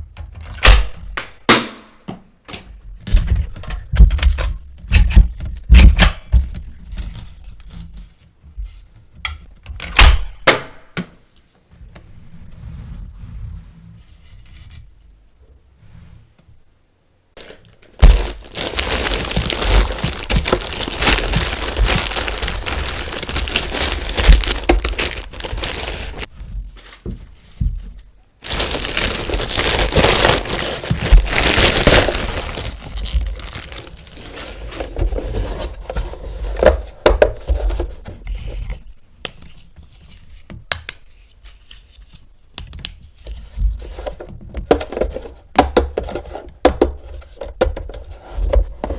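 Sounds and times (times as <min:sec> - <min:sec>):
plastic packaging crinkling and tearing: 0:17.4 - 0:27.0, 0:28.4 - 0:35.3.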